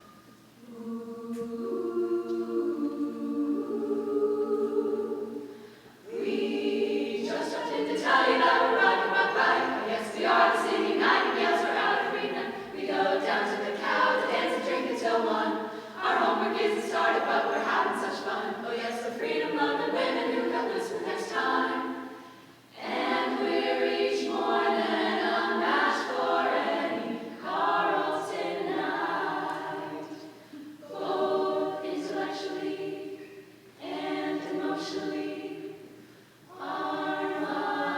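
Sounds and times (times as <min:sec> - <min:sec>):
a cappella group singing: 0:00.1 - 0:37.9
singers breathing: 0:05.4 - 0:06.0, 0:15.7 - 0:16.0.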